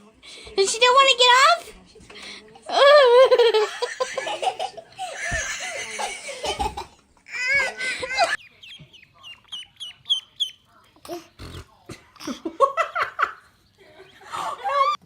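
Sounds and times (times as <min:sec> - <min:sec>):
hearty laughter: 0:02.8 - 0:08.4, 0:11.9 - 0:15.0
small bird cheeping: 0:08.4 - 0:10.6.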